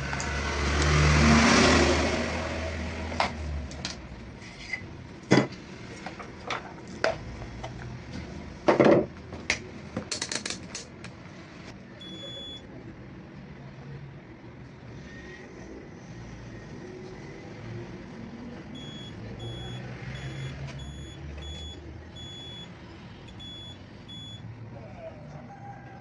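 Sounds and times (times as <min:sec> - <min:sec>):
clicks and knocks of hard objects: 0:05.3 - 0:11.2.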